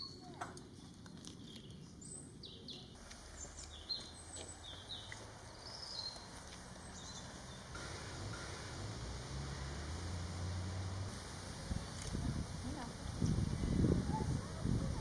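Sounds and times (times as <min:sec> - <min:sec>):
small birds chirping: 0:00.0 - 0:08.8
faint outdoor hiss: 0:00.0 - 0:15.0.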